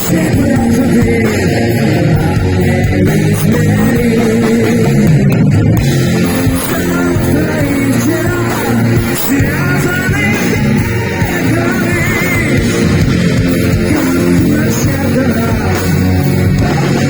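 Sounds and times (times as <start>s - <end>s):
heavy metal band playing: 0.0s - 17.0s
wavering high lead guitar line: 0.0s - 17.0s.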